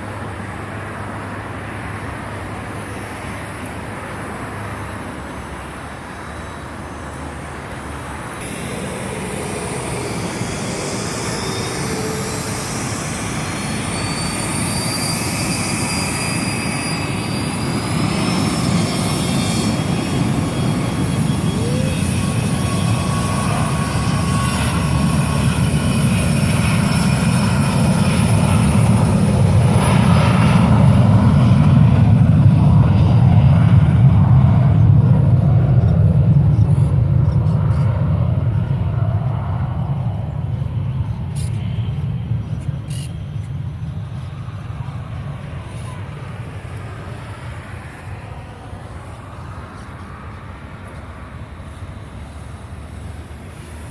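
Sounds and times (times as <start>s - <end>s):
jet engine low rumble: 0.0s - 53.9s
jet engine whine: 0.0s - 53.9s.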